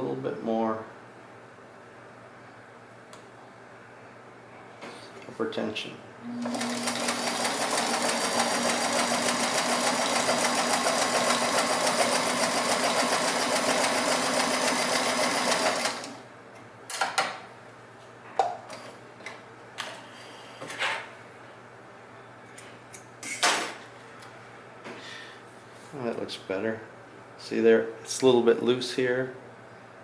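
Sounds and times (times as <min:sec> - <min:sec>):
sewing machine stitching: 0:06.4 - 0:16.2.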